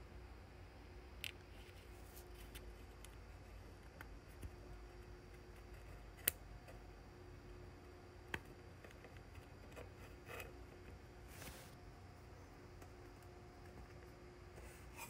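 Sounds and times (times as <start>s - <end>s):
soft rustling: 11.2s - 11.8s.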